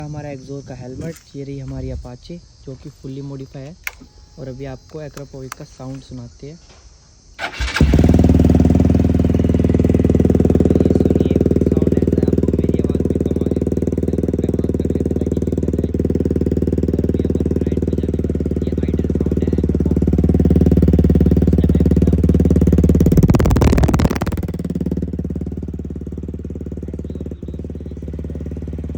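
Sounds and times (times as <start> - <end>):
motorcycle engine idling and revving: 7.4 - 28.9.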